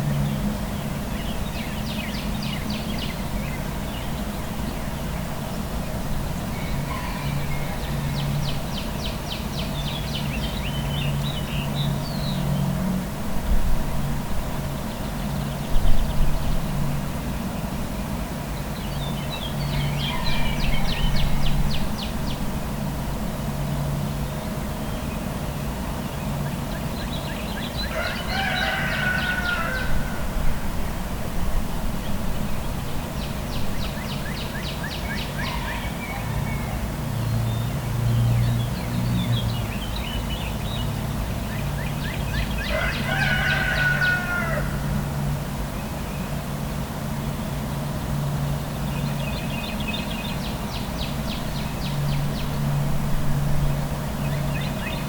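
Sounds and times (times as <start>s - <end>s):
birds calling: 0.0s - 12.8s, 14.5s - 46.5s, 47.3s - 55.0s
low traffic hum: 0.0s - 55.0s
rooster crowing: 6.5s - 8.6s, 19.6s - 21.5s, 27.8s - 31.2s, 35.4s - 37.0s, 42.6s - 45.3s.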